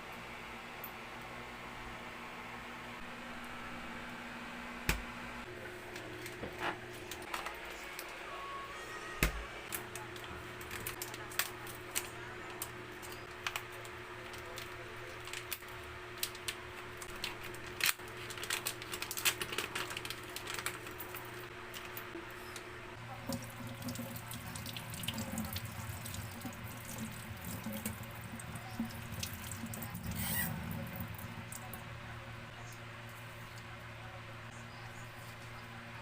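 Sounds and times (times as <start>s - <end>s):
low steady hum: 0.0s - 36.0s
water running: 23.0s - 31.9s.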